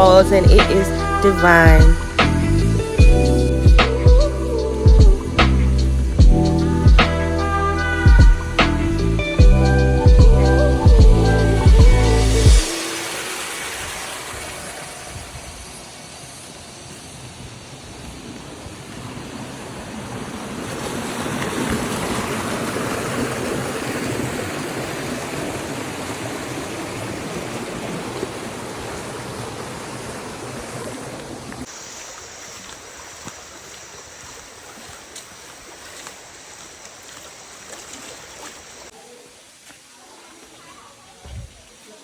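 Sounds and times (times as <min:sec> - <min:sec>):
waterfall roaring: 0:11.6 - 0:31.9.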